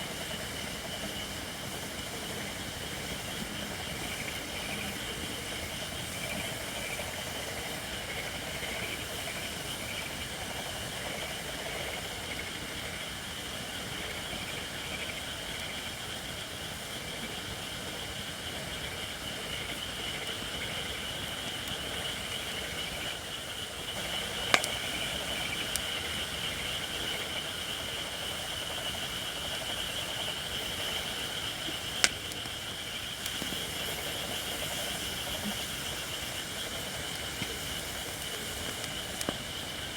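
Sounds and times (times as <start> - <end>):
campfire burning: 0.0 - 39.9
hiss of steam from wood: 0.0 - 39.9
sharp fire pops: 24.1 - 26.0, 32.0 - 34.0, 36.6 - 39.7.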